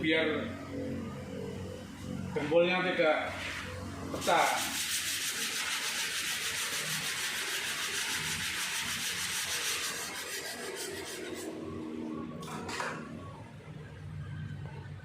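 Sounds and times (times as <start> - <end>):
sanding car body filler: 3.3 - 11.7.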